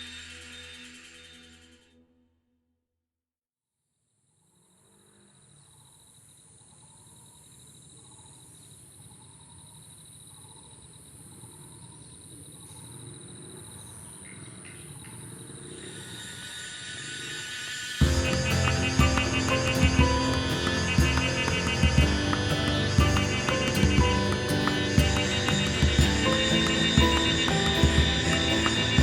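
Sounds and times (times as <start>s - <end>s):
cicadas buzzing: 4.9s - 29.0s
thin steady whine: 15.2s - 29.0s.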